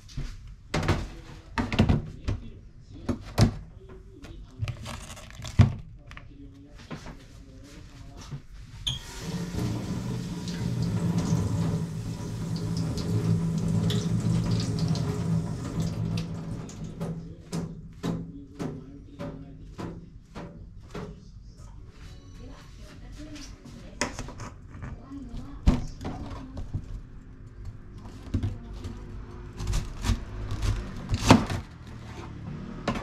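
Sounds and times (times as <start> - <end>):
tap water running into sink: 8.9 - 18.2.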